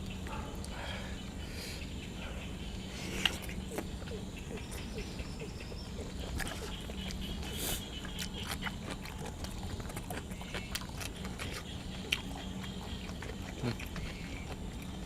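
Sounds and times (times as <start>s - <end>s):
person chewing food: 3.1s - 5.3s, 5.9s - 15.0s.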